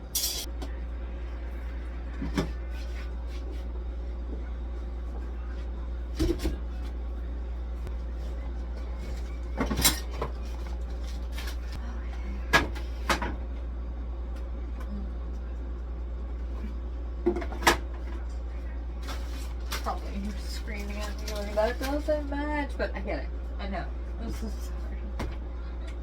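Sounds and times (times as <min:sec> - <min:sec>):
steady low hum: 0:00.0 - 0:26.0
kitchen things clattering: 0:00.1 - 0:00.5.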